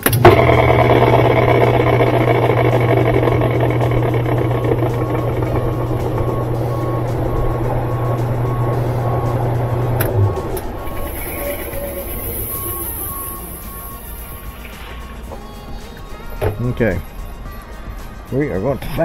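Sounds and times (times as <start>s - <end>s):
washer motor hum: 0.0s - 17.1s
washer spin whirring: 0.0s - 17.2s
faint beep: 10.1s - 14.9s.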